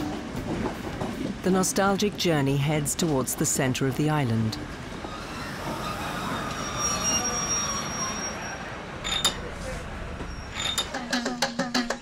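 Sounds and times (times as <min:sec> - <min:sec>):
railway carriages rolling: 0:00.0 - 0:11.8
wheels squealing faintly: 0:05.1 - 0:10.9
metallic clank: 0:09.0 - 0:09.6, 0:10.2 - 0:11.6.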